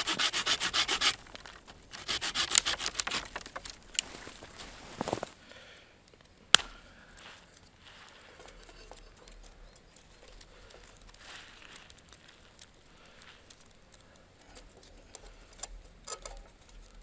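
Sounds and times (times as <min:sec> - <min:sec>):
faint rustling: 0:00.0 - 0:17.0
sharp click: 0:06.6 - 0:06.8.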